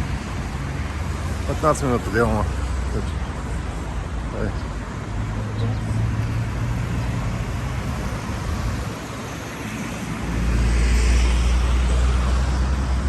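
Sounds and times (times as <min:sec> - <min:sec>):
road traffic passing: 0:00.0 - 0:13.0
vehicle passing with low rumble: 0:05.0 - 0:13.0.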